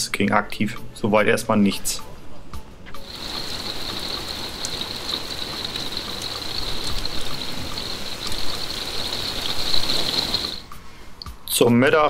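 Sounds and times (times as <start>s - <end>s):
raindrop ticks: 3.0s - 10.7s
rain hissing: 3.0s - 11.0s.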